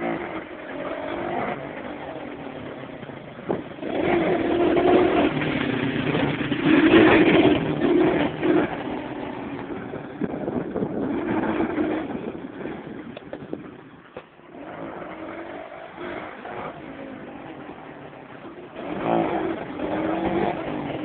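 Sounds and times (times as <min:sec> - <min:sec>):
small motorcycle engine revving: 0:00.0 - 0:13.9, 0:14.5 - 0:21.0.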